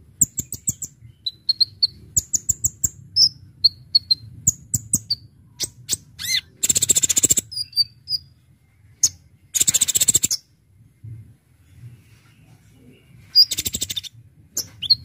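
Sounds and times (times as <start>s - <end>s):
bird rapid rattling trill: 6.2s - 7.5s, 9.5s - 10.4s.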